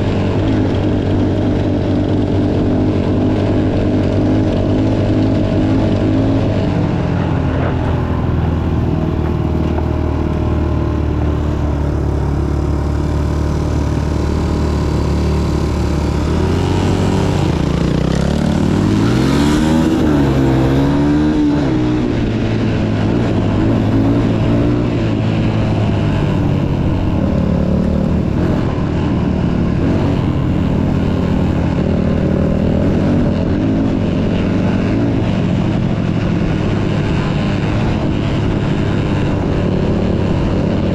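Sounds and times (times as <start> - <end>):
motocross bike engine revving: 11.9 - 40.9.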